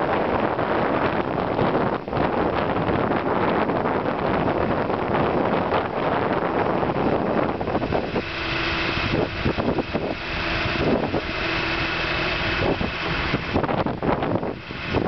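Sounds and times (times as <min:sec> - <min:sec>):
wind buffeting microphone: 0:00.0 - 0:15.0
steady whine: 0:03.5 - 0:15.0
skid steer engine running: 0:04.8 - 0:15.0.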